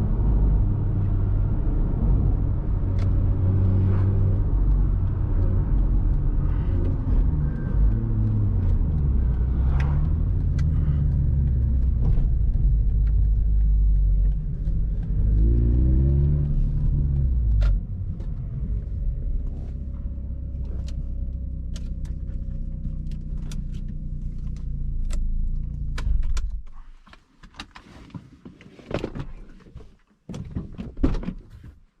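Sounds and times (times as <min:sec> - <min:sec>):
rotary car engine revving: 0:00.0 - 0:26.0.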